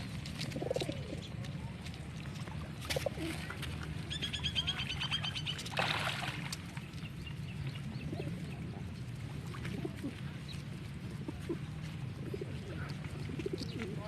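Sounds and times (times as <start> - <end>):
birds chirping: 4.0 - 5.8, 6.7 - 9.2.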